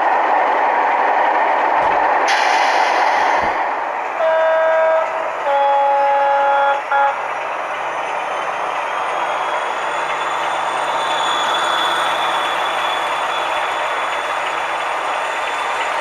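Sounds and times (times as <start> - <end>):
model locomotive horn: 4.2 - 7.2.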